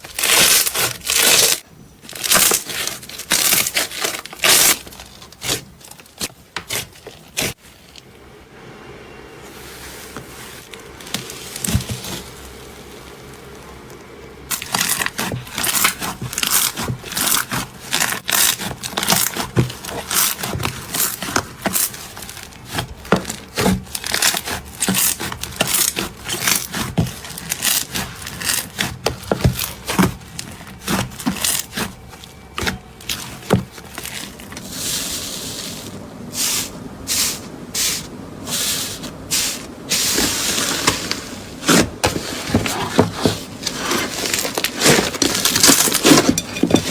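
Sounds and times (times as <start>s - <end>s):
soft squishy slime: 9.4s - 42.0s
slime crackling and popping: 13.2s - 34.6s.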